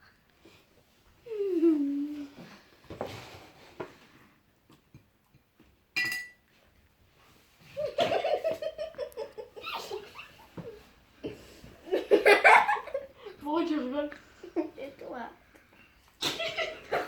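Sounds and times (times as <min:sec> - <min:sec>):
child laughing: 0:07.8 - 0:10.8.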